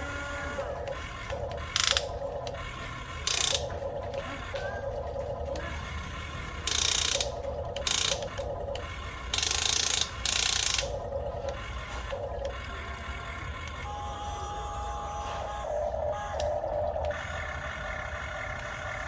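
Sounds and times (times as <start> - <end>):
toy excavator motors whirring: 0.0 - 19.0.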